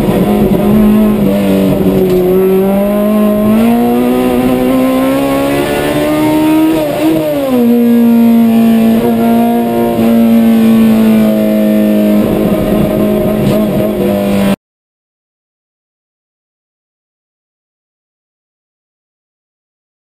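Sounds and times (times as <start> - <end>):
car engine accelerating hard: 0.0 - 14.6.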